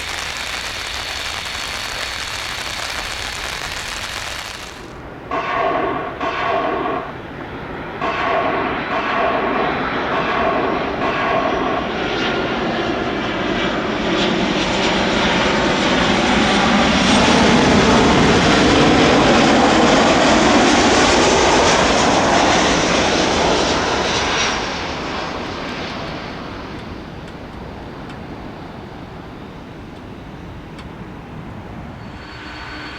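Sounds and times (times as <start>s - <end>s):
jet engines rushing: 0.0s - 32.9s.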